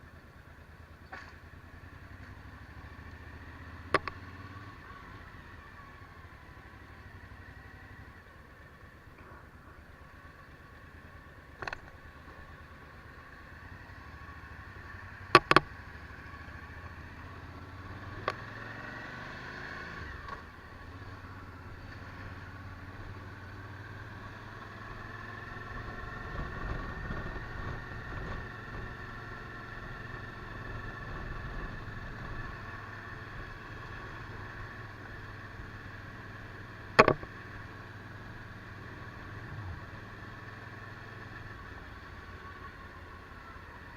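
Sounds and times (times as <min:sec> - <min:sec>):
motorcycle engine running: 0:00.0 - 0:43.9
sharp clicks: 0:03.9 - 0:04.2, 0:37.0 - 0:37.3.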